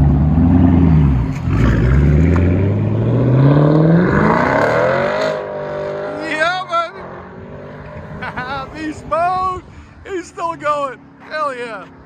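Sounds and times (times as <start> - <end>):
car engine accelerating: 0.0 - 9.2.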